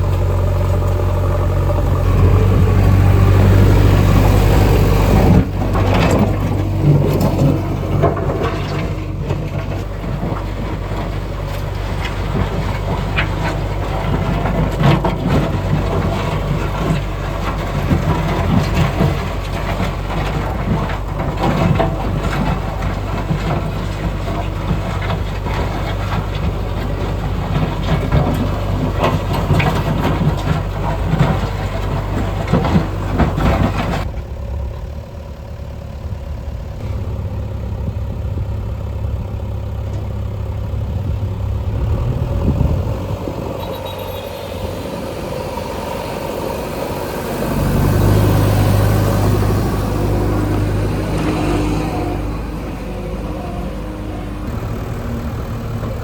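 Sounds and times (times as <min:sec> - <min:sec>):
diesel machinery engine running: 0:00.0 - 0:56.0
clattering and knocking: 0:04.1 - 0:34.1.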